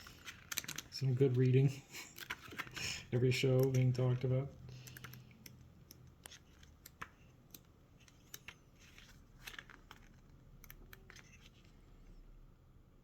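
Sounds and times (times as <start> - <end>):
paper and packaging rustling: 0.0 - 4.4, 8.0 - 10.4.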